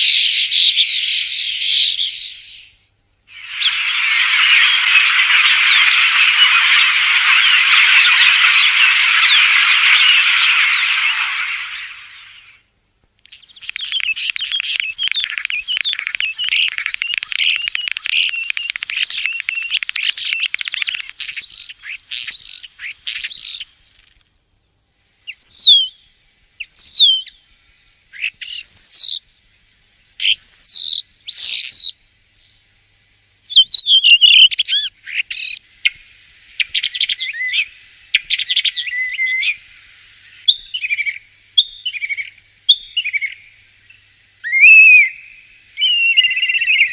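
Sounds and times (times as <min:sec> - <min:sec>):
starling singing: 0:13.3 - 0:23.7.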